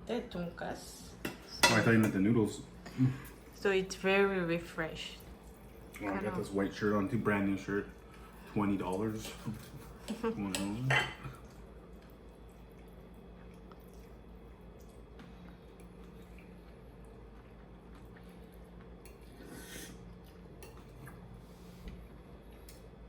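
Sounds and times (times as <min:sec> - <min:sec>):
wet eating sound: 0:05.2 - 0:23.0.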